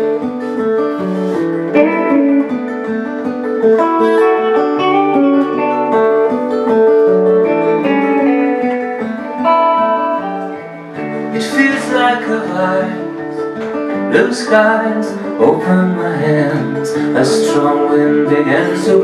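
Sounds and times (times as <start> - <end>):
plucked guitar: 0.0 - 19.0.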